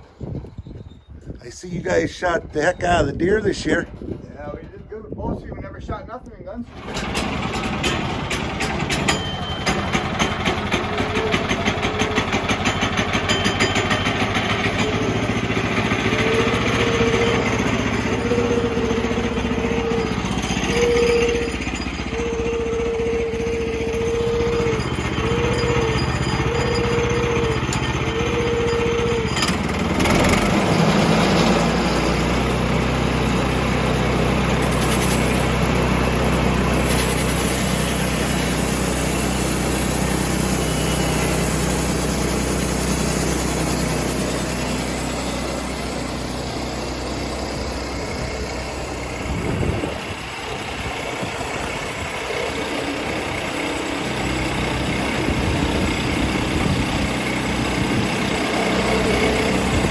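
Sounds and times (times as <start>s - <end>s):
engine running: 6.6s - 59.9s
engine knock: 6.7s - 16.3s.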